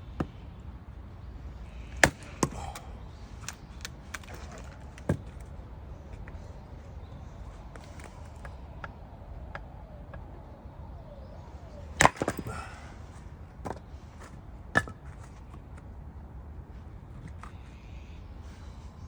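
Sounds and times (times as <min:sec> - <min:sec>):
hatchet chopping firewood: 0:01.8 - 0:05.4, 0:12.0 - 0:12.8.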